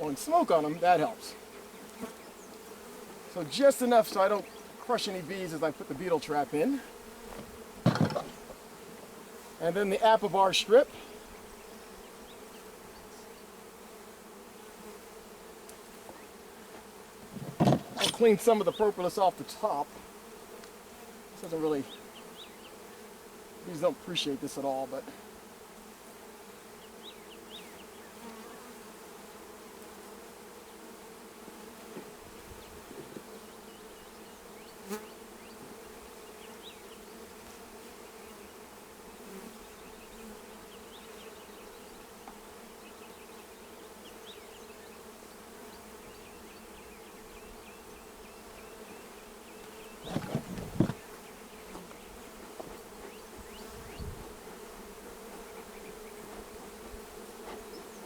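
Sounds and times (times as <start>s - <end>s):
honeybees buzzing: 0.0s - 58.0s
knocks: 7.3s - 8.5s, 17.3s - 18.2s, 50.0s - 51.0s.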